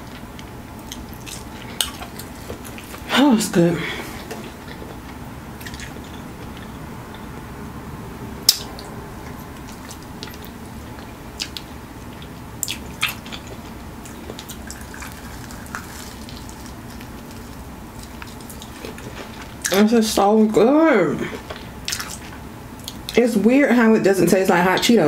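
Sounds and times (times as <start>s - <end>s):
steady background noise: 0.0s - 25.0s
wet chewing: 4.3s - 7.2s, 8.5s - 19.8s, 21.4s - 23.2s.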